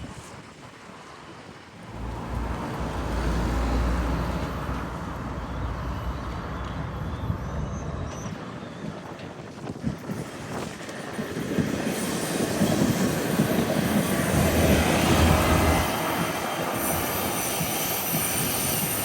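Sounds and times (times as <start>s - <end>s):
tram running with low rumble: 0.0s - 19.0s.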